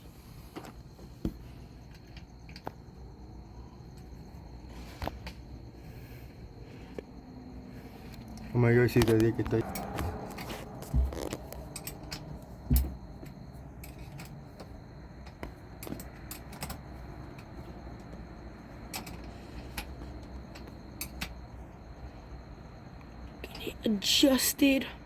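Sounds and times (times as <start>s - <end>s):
metallic clinks and taps: 8.3s - 18.2s
dull thumps: 9.9s - 11.7s, 12.4s - 13.6s.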